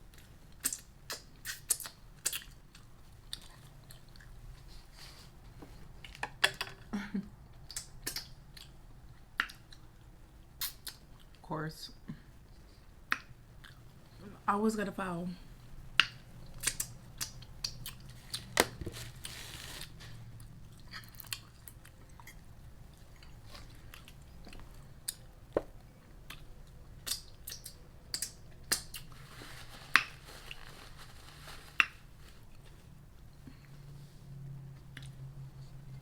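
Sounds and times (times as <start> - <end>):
person chewing crunchy food: 0.1 - 4.4, 16.0 - 25.3.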